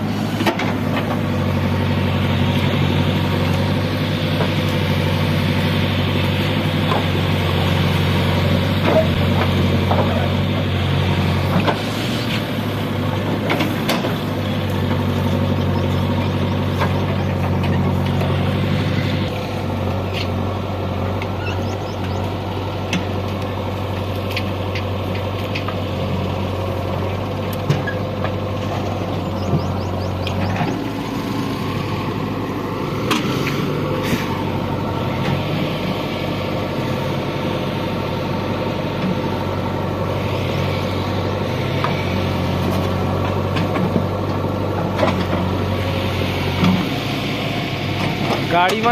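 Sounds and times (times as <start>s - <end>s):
diesel engine under load: 0.0s - 48.9s
machinery knocks and clanks: 8.8s - 10.4s.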